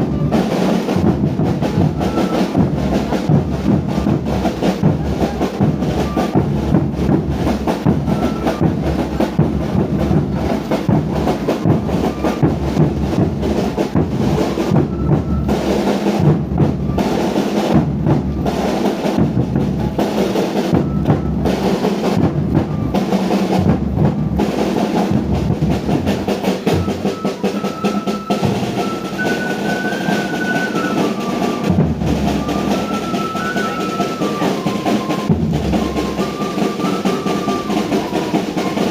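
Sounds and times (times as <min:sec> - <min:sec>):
rapid drumming: 0:00.0 - 0:38.9
high melody line: 0:26.6 - 0:38.9.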